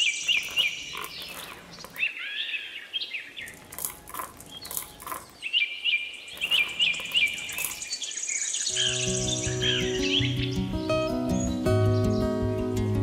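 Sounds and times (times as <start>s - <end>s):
pebbles dropping onto pebbles: 0.0s - 2.2s, 3.4s - 5.5s, 6.4s - 8.0s
small birds chirping: 0.0s - 12.5s.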